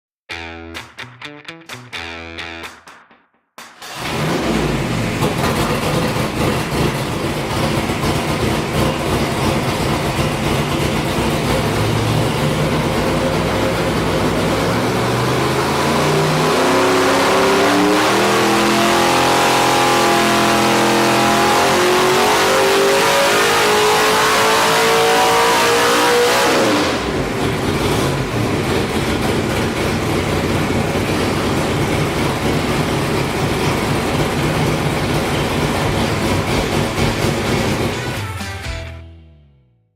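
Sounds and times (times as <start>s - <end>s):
engine revving under load: 3.8s - 38.2s
engine rough idle: 3.9s - 14.8s, 27.2s - 38.2s.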